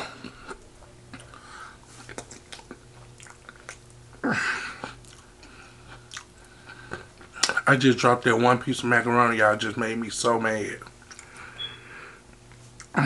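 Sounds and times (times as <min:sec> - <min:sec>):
person chewing food: 0:00.2 - 0:07.6, 0:10.8 - 0:11.5
wet mouth clicks: 0:02.1 - 0:03.9.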